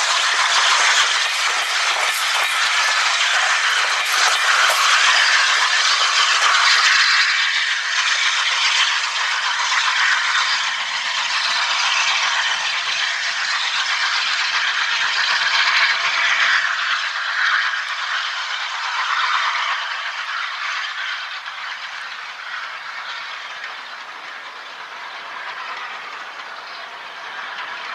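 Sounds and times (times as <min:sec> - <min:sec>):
train wheels clattering: 0:00.0 - 0:27.9.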